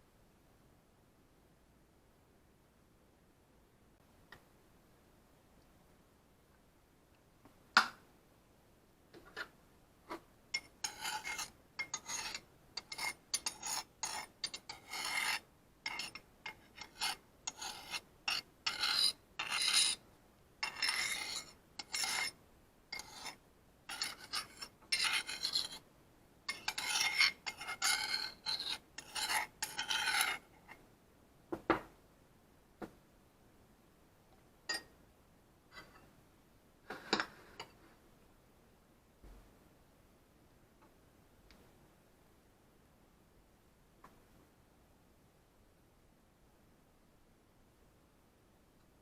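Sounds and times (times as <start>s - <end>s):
kitchen utensil scraping food: 10.1s - 20.0s, 20.6s - 25.8s, 26.5s - 30.8s.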